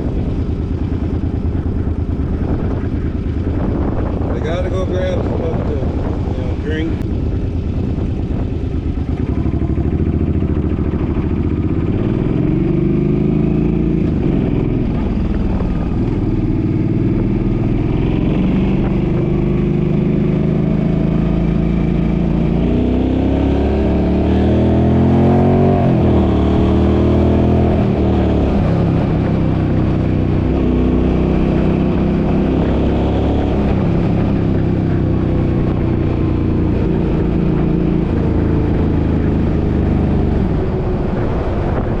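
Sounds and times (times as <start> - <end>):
engine revving through gears: 16.0 - 41.3.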